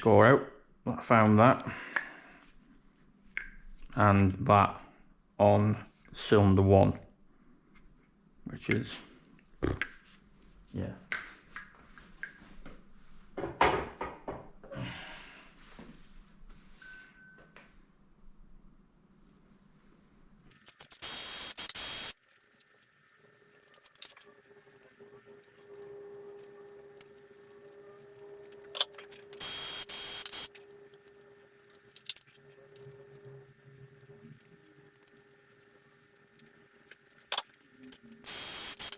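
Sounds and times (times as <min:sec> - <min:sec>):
air jet hissing: 0:38.2 - 0:38.9.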